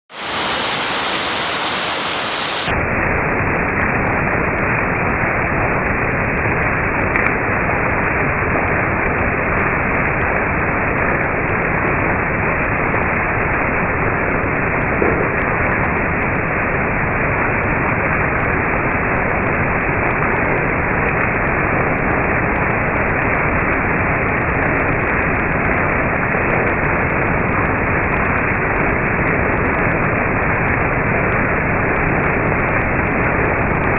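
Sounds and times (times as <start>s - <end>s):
rainfall hiss: 0.1s - 4.2s.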